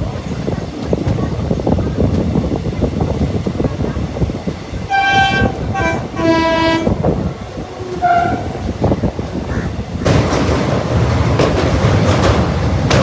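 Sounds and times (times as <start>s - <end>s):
moving train rumble: 0.0s - 13.0s
train horn blasts: 4.9s - 7.2s, 7.8s - 8.6s.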